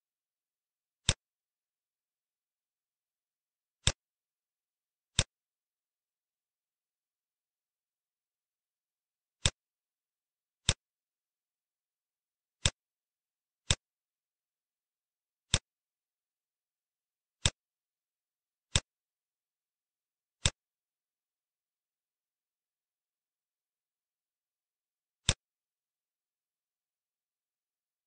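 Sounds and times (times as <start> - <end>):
computer mouse clicking: 12.6 - 12.8, 13.6 - 13.9, 15.5 - 15.7, 17.4 - 17.6, 20.4 - 20.6.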